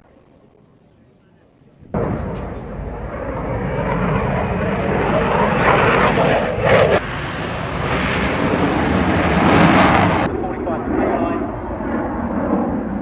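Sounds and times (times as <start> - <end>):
fighter jet engine roar: 2.0 - 13.0.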